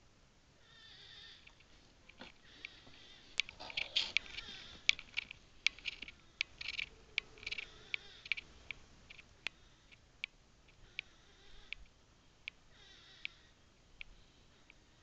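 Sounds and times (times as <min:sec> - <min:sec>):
animal squealing cries: 0:02.4 - 0:04.9, 0:06.1 - 0:08.4, 0:10.8 - 0:11.8, 0:12.8 - 0:13.5.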